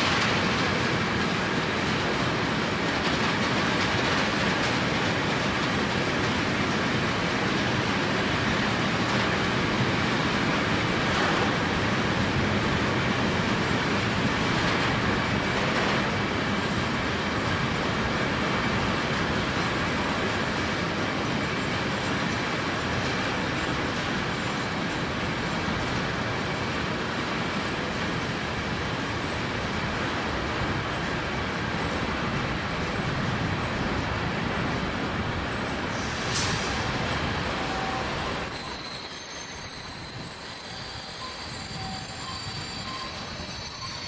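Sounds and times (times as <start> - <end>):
distant freight train rolling: 0.0 - 44.0
thin high squeal: 37.6 - 44.0.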